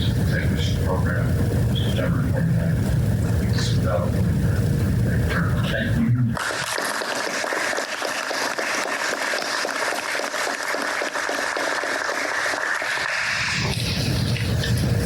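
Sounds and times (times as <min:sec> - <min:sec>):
audience applauding: 0:06.4 - 0:14.5.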